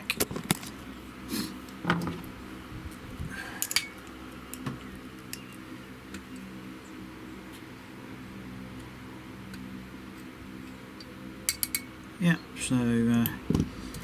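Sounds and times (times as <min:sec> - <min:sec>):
objects knocked on workbench: 0:01.8 - 0:02.2.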